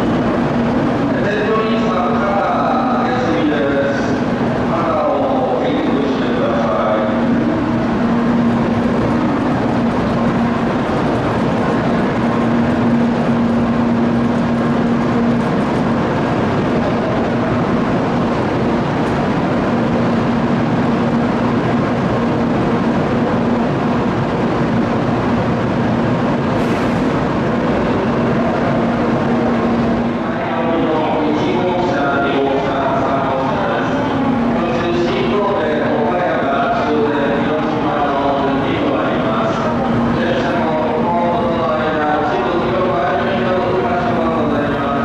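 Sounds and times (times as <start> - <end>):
train rushing hiss: 26.5 - 28.8.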